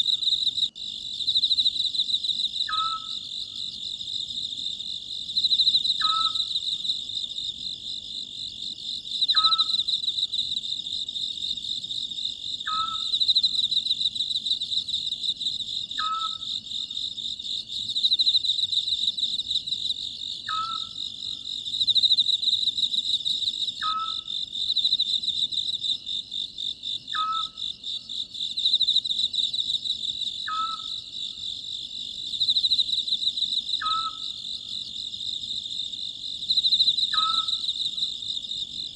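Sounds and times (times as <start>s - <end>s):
crickets chirping: 0.0s - 38.9s
owl calling: 2.7s - 3.2s, 6.0s - 6.5s, 9.3s - 9.8s, 12.7s - 13.2s, 16.0s - 16.5s, 20.5s - 21.0s, 23.8s - 24.3s, 27.1s - 27.6s, 30.4s - 31.0s, 33.8s - 34.3s, 37.1s - 37.6s.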